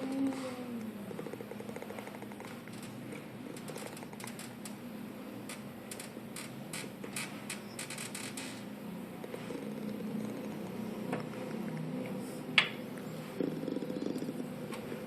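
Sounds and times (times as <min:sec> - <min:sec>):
cat purring: 0:00.0 - 0:02.7, 0:09.2 - 0:11.9, 0:13.2 - 0:15.0.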